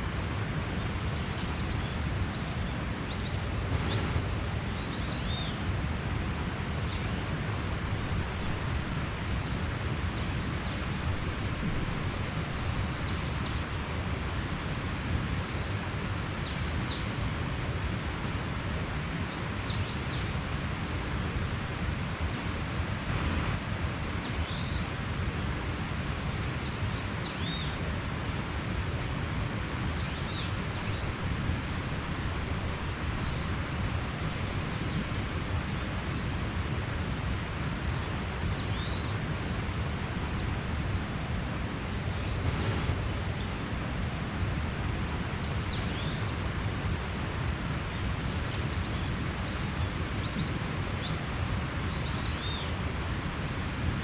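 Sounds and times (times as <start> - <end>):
mountain stream rushing: 0.0 - 54.0.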